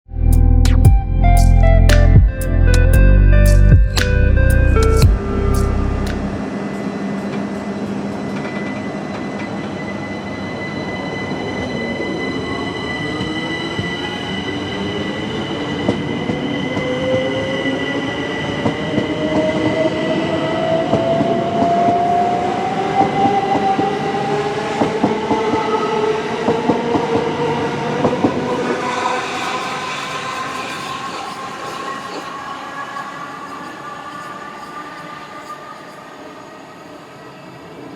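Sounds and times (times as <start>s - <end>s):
steady high tone: 0.1s - 8.2s, 27.5s - 37.8s.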